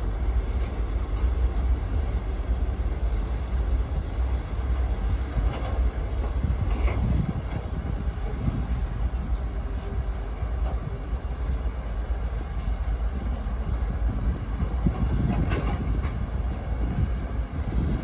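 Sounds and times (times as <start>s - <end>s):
excavator diesel rumble: 0.0s - 18.0s
excavator clank: 14.9s - 16.2s.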